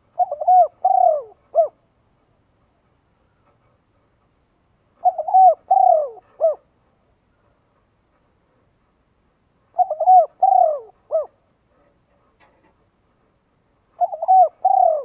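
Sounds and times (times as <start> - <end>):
bird calling low notes: 14.0 - 15.0.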